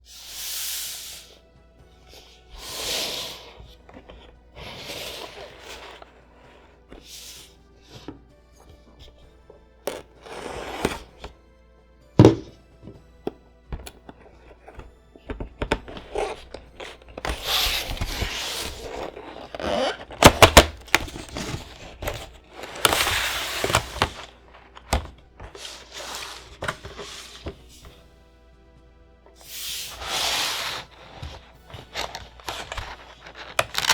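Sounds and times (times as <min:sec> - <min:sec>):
packaging rubbing and scraping: 0:02.2 - 0:09.3, 0:09.9 - 0:11.3, 0:13.8 - 0:28.0, 0:29.4 - 0:33.9
packaging thunks and knocks: 0:12.2 - 0:28.0, 0:30.8 - 0:33.9.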